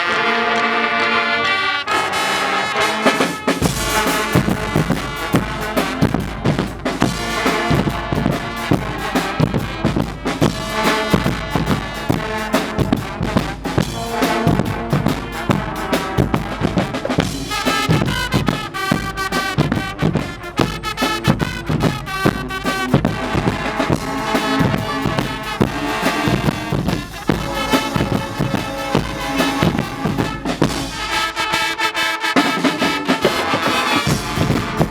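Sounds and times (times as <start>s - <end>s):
brass band playing: 0.0s - 34.9s
steady drum beat: 3.0s - 34.9s.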